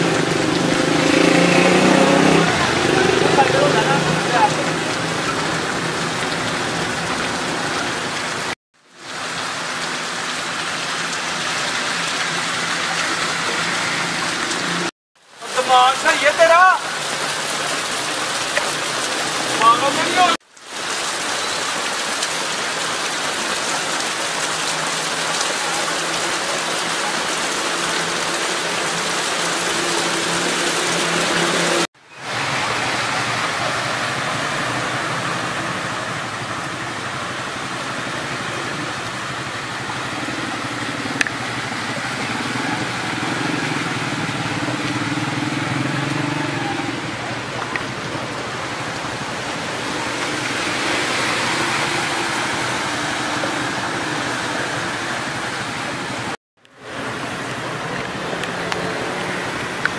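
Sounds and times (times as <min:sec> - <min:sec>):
vehicle engine hum: 0:00.0 - 0:08.5
heavy rain hissing: 0:00.0 - 0:59.9
water running on street: 0:00.0 - 0:59.9.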